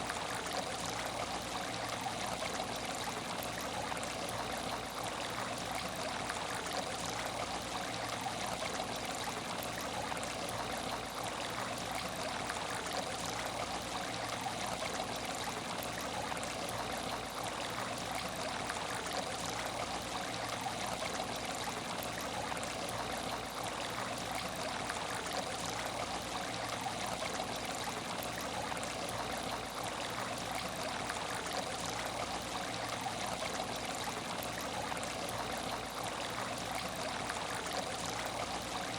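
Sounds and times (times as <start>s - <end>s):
water trickling in aquarium: 0.0s - 38.9s.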